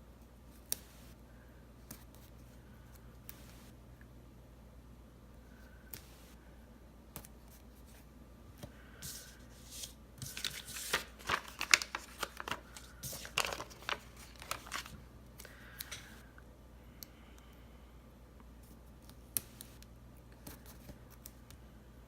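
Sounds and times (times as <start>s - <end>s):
stickers peeling and rustling: 9.0s - 15.0s.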